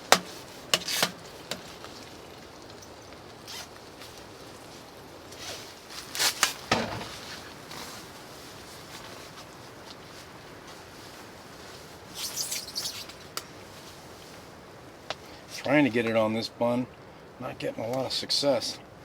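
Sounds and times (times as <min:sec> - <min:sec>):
rasping handling noise: 0:00.0 - 0:01.7
low background hiss: 0:00.0 - 0:19.0.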